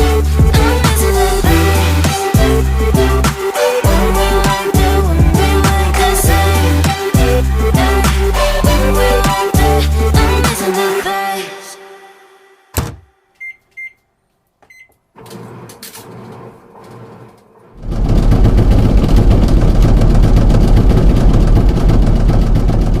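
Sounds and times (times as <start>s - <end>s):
washing machine rushing and rumbling: 15.2s - 23.0s.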